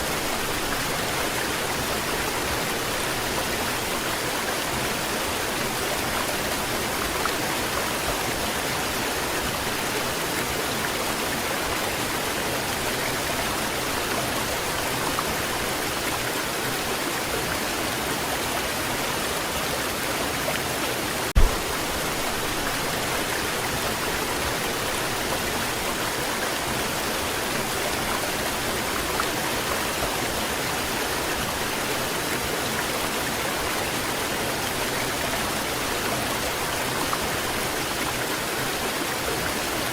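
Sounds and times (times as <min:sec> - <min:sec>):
short knock: 0:21.4 - 0:21.7.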